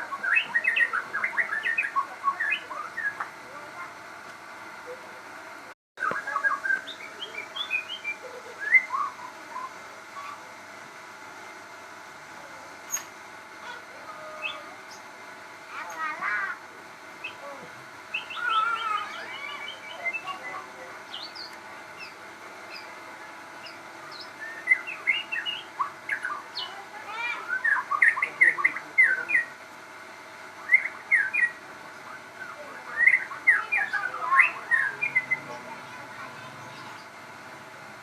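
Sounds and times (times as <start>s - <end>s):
songbird chirping and whistling: 0.0s - 3.3s, 6.0s - 10.4s, 18.1s - 23.0s, 23.6s - 29.6s, 30.6s - 35.6s.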